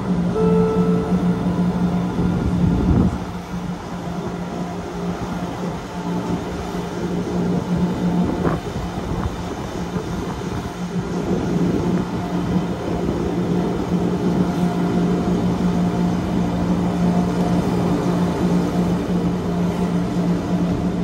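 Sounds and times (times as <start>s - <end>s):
train motor hum: 0.0s - 21.0s.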